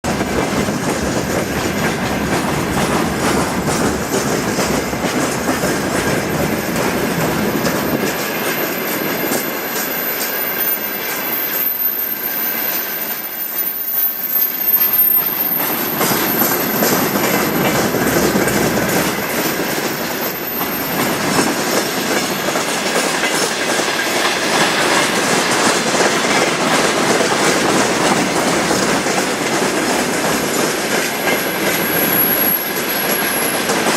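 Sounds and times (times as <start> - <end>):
train wheels clattering: 0.0 - 13.6, 14.6 - 33.9
wheel squeal: 3.8 - 22.6, 31.1 - 33.9.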